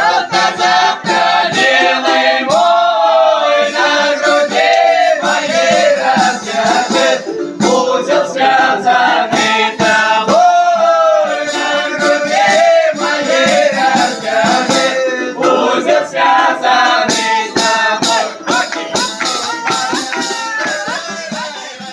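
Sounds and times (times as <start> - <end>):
folk ensemble singing: 0.0 - 21.9
sharp rhythm strokes: 0.0 - 21.9.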